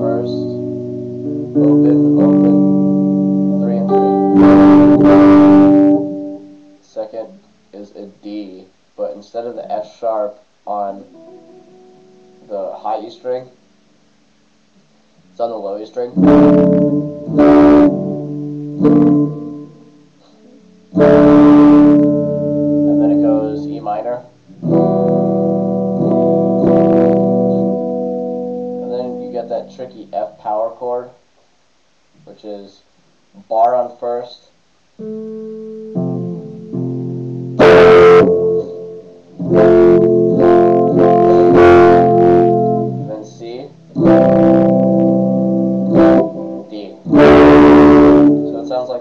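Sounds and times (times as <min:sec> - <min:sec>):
guitar strumming a chord: 0:00.0 - 0:06.8, 0:10.7 - 0:13.8, 0:15.2 - 0:30.6, 0:35.0 - 0:49.0.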